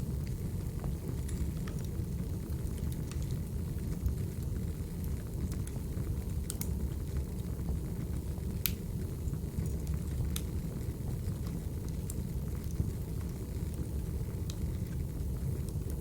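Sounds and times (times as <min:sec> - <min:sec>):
fire crackles and pops: 0:00.0 - 0:16.0
wood fire rumbling: 0:00.0 - 0:16.0.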